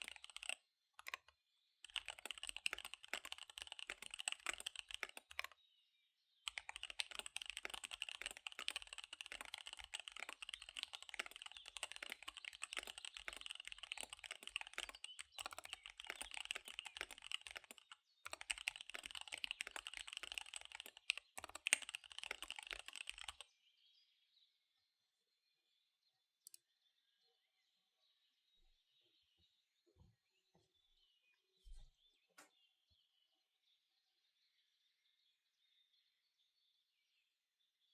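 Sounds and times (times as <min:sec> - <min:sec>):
mechanical keyboard typing: 0:00.0 - 0:05.6, 0:06.5 - 0:23.4.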